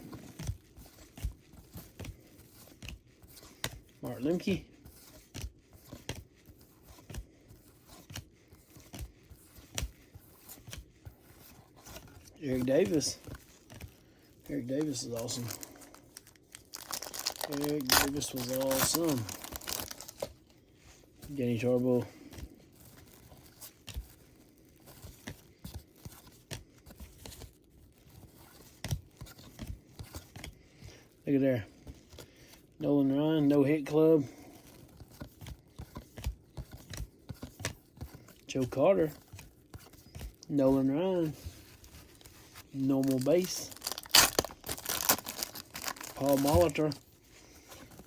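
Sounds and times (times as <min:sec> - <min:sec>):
trading cards flipped by hand: 0:41.3 - 0:48.0.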